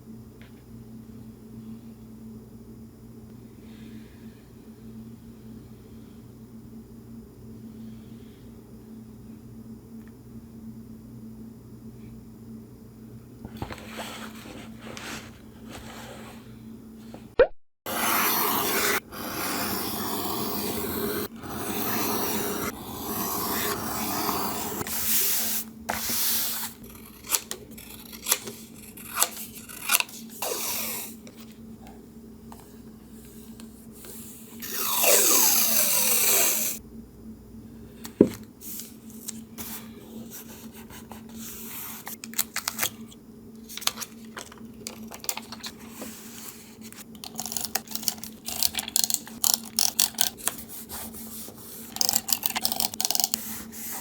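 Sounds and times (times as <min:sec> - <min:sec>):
paper rubbing and rustling: 0:13.5 - 0:16.4
paper ripping: 0:26.1 - 0:31.2.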